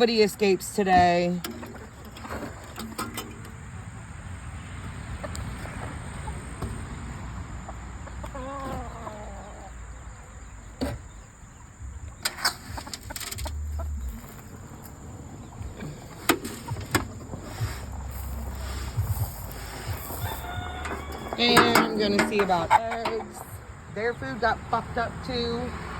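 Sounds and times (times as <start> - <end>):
chickens clucking: 0.0 - 25.8
sharp knocks and rattles: 0.9 - 3.8, 12.1 - 23.3
drawn-out wavering chicken call: 19.6 - 21.7.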